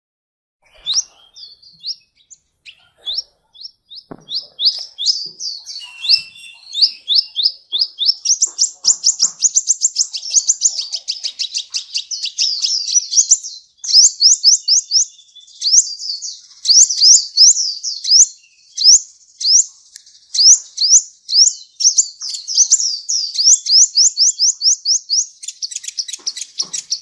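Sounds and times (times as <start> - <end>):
sunbird chirping and trilling: 0.6 - 27.0.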